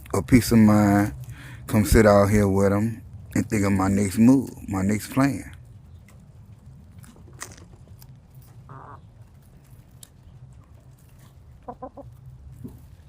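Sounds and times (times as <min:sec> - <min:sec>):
chickens clucking: 0:07.0 - 0:13.0.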